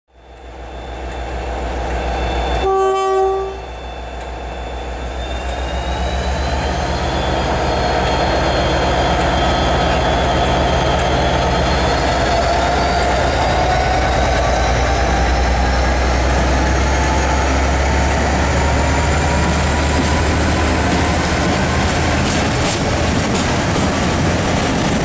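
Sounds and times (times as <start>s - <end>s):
diesel locomotive engine running: 0.1s - 25.0s
train horn blast: 2.6s - 3.7s.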